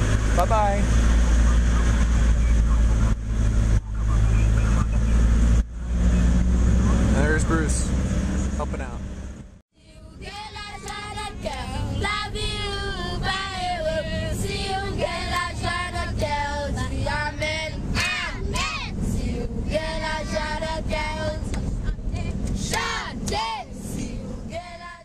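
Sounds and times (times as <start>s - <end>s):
children singing together: 10.2s - 21.6s.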